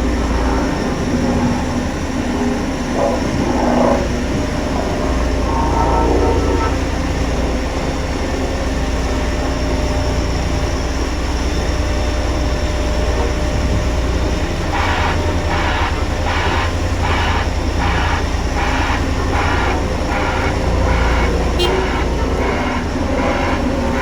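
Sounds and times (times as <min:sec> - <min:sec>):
diesel machine deep hum: 0:00.0 - 0:24.0
pulsing rasp: 0:13.0 - 0:24.0.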